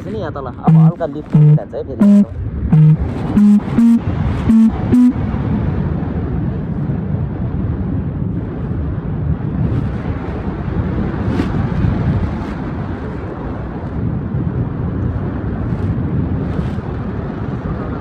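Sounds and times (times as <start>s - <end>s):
wind buffeting microphone: 5.1s - 18.0s.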